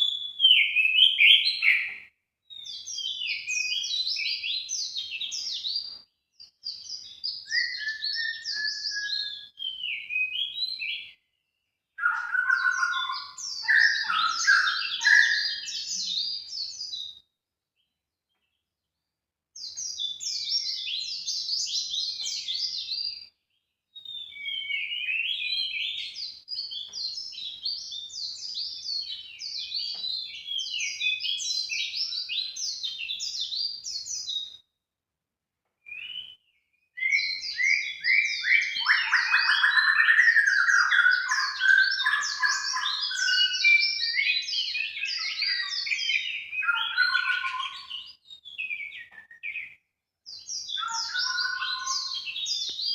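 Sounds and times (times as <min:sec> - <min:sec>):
songbird chattering song: 0:00.0 - 0:17.2, 0:35.9 - 0:52.9.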